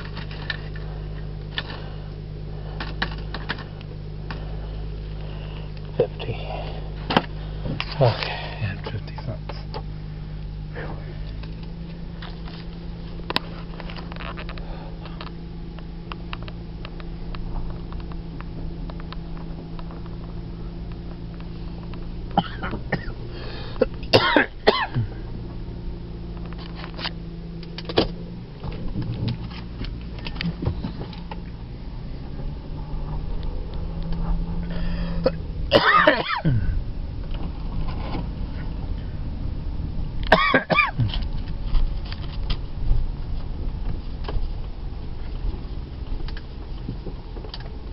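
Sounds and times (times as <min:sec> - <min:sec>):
car engine humming: 0:00.0 - 0:47.9
person coughing: 0:22.4 - 0:23.2, 0:23.8 - 0:25.2, 0:35.2 - 0:36.8, 0:40.3 - 0:41.2.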